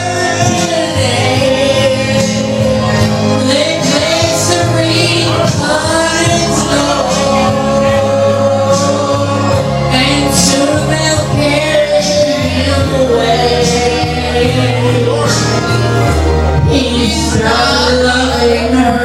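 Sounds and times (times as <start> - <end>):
karaoke backing track: 0.0 - 19.0
person singing country ballad: 0.0 - 19.0.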